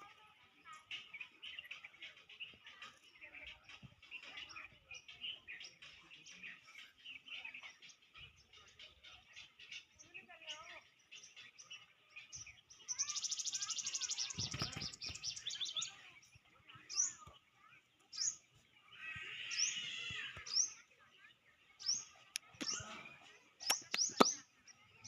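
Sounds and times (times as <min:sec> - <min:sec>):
small birds chirping: 0:00.0 - 0:25.0
sharp clicks: 0:23.6 - 0:24.4.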